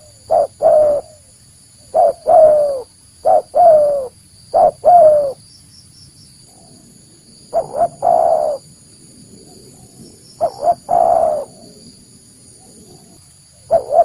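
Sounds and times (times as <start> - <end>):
dove cooing: 0.0 - 5.4, 7.5 - 8.7, 9.4 - 11.9, 12.5 - 14.0.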